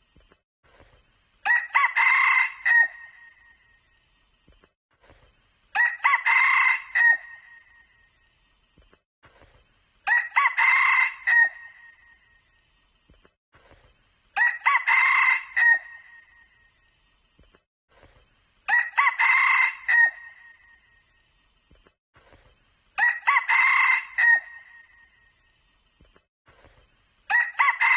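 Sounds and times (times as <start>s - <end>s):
rooster crowing: 1.5s - 3.3s, 5.8s - 7.4s, 10.1s - 11.7s, 14.4s - 16.2s, 18.7s - 20.6s, 23.0s - 24.9s, 27.3s - 27.9s.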